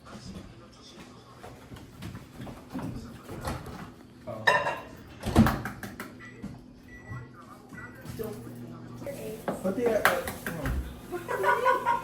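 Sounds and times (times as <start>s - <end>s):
knocks and bumps in kitchen: 4.5s - 6.0s, 9.5s - 11.0s.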